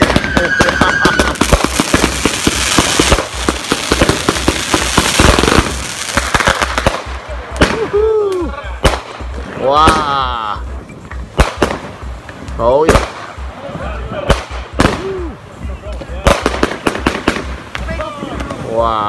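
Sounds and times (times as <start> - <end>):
lower firework whistle: 0.0 - 2.3
firework whistle: 0.0 - 5.8
firework shots crackling: 0.0 - 18.8.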